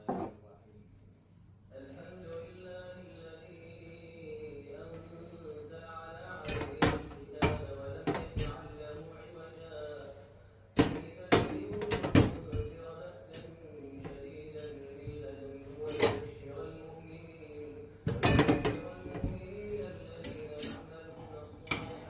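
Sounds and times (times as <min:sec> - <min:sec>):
chanted recitation: 0:01.7 - 0:22.0
dishes and cutlery clinking: 0:06.4 - 0:08.9, 0:10.8 - 0:16.4, 0:18.0 - 0:22.0.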